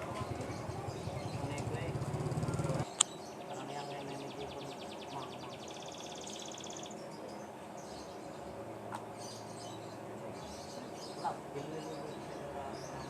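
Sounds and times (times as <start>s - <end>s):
faint bird chirps: 0.0s - 8.5s
canary trilling: 0.2s - 7.0s.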